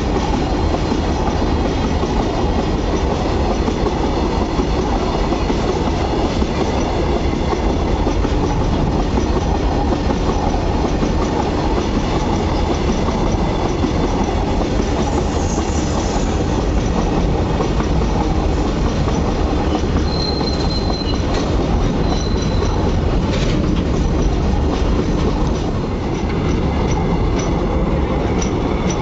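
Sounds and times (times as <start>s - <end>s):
clacks over rail joints: 0.0s - 29.0s
steel wheels rumbling on rail: 0.0s - 29.0s
high wheel squeal: 15.0s - 16.6s, 19.6s - 22.9s.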